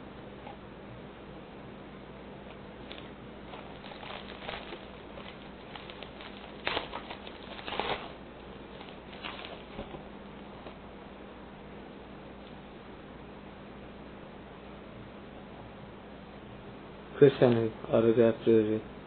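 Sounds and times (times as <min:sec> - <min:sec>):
faint steady hum: 0:00.0 - 0:19.0
cards rustling: 0:02.8 - 0:10.0.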